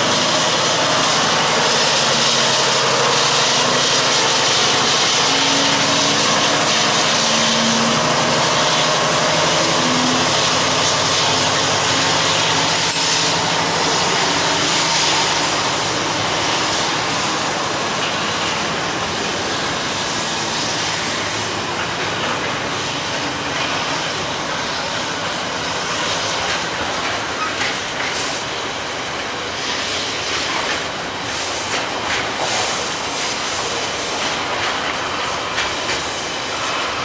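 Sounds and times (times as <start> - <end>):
train engine drone: 0.0 - 37.0
train wheels rumbling on rails: 0.0 - 37.0.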